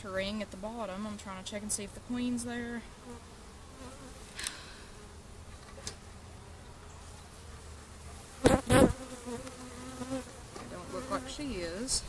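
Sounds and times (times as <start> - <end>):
bees buzzing: 2.0 - 12.0.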